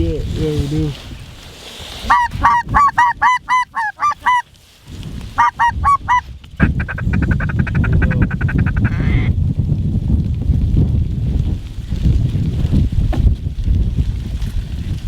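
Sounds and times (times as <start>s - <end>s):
wind on microphone: 0.0s - 15.0s
geese chattering: 2.0s - 4.5s, 5.4s - 9.3s
snow goose honking: 2.0s - 4.5s, 5.4s - 9.3s.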